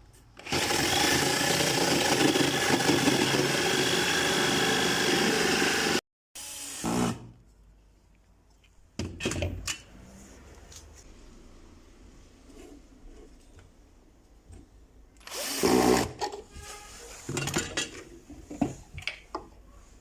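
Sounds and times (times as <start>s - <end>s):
electric drill boring wood: 0.4s - 7.2s, 15.2s - 16.2s.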